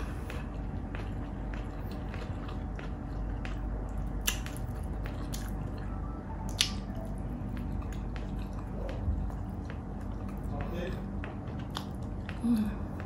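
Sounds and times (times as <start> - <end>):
low steady hum: 0.0 - 13.0
wet chewing mouth sounds: 0.0 - 13.0
sharp mouth clicks: 6.5 - 6.9.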